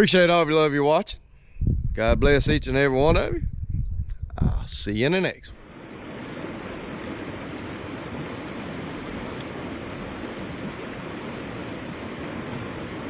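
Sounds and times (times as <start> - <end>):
steady rushing noise: 4.4 - 13.0.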